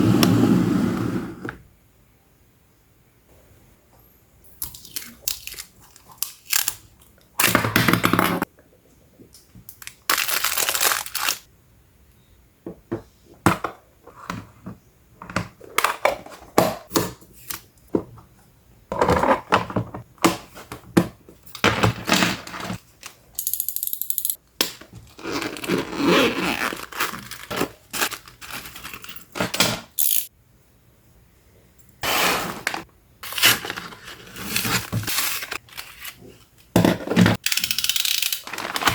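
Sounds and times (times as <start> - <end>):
packaging tearing and crinkling: 4.6 - 6.9, 9.8 - 11.5, 25.0 - 29.1, 32.7 - 36.1, 37.9 - 38.9.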